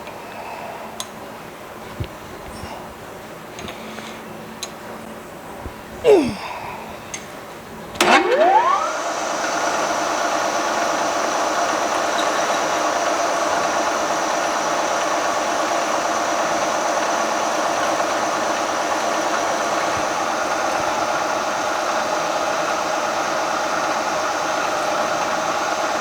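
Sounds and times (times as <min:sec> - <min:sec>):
milling machine spindle whining: 0:08.0 - 0:26.0.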